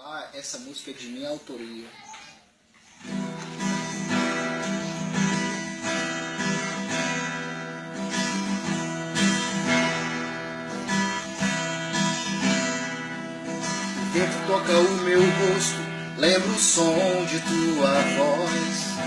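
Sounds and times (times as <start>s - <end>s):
acoustic guitar strumming: 3.0s - 19.0s.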